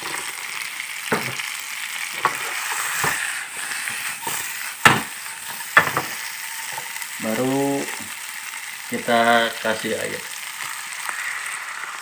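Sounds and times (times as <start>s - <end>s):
food sizzling in oil in a wok: 0.0s - 12.0s
sharp knocks of stirring in a wok: 4.2s - 6.9s.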